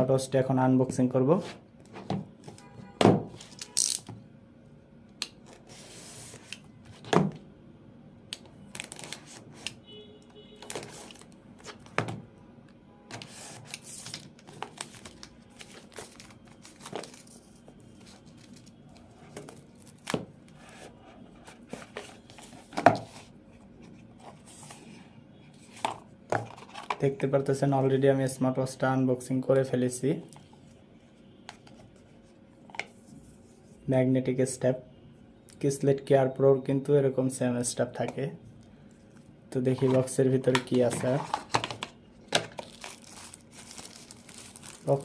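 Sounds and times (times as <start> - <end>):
plastic and paper crinkling: 13.1 - 21.0, 39.7 - 45.0
packaging tearing: 42.5 - 45.0.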